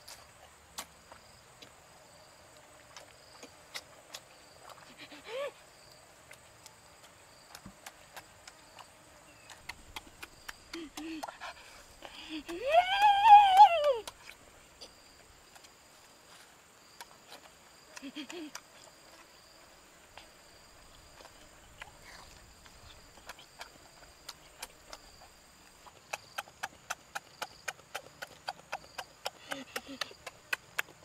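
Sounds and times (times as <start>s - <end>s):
lip-smacking clicks: 6.2s - 12.6s, 17.0s - 19.2s, 21.2s - 31.0s
person chewing wetly: 6.2s - 12.6s, 20.1s - 31.0s
person humming low mm: 12.0s - 14.1s.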